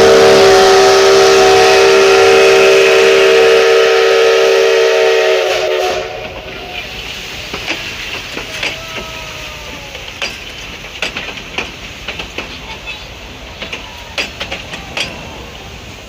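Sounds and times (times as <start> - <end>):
locomotive whistle chord: 0.0 - 6.9
rail noise: 0.0 - 16.0.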